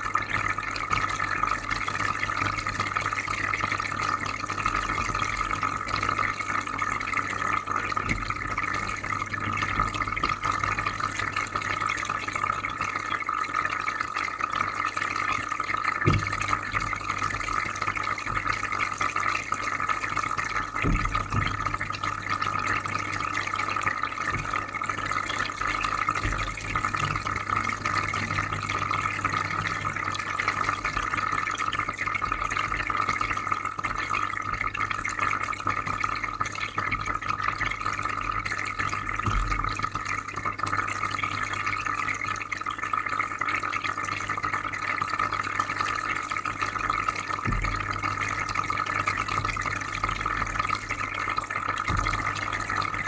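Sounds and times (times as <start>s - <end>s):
aquarium filter hum: 0.0s - 53.0s
bubbling and trickling water: 0.0s - 53.0s.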